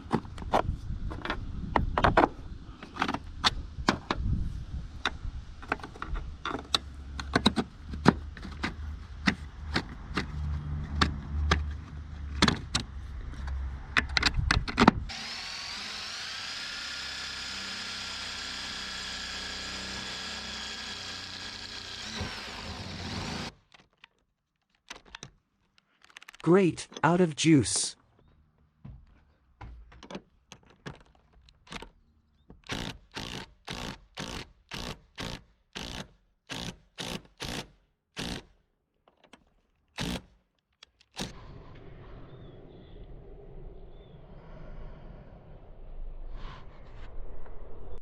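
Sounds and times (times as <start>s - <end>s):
cordless drill spinning: 15.1s - 23.6s, 32.7s - 37.6s
tools and parts clicking: 23.7s - 26.4s.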